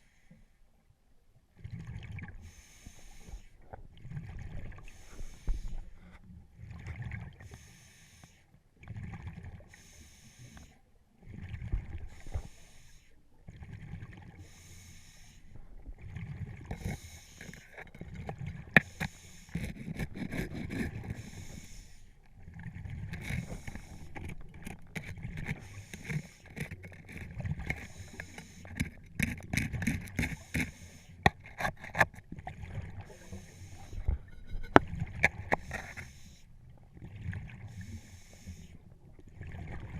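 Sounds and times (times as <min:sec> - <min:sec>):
scuba regulator breath hissing: 0:02.4 - 0:03.5, 0:16.8 - 0:17.8, 0:18.8 - 0:22.2, 0:23.2 - 0:24.2, 0:25.5 - 0:26.7, 0:27.8 - 0:28.9, 0:30.3 - 0:31.2, 0:33.1 - 0:34.8, 0:35.6 - 0:36.5, 0:37.7 - 0:38.8
sharp clicks and knocks: 0:23.2 - 0:32.2.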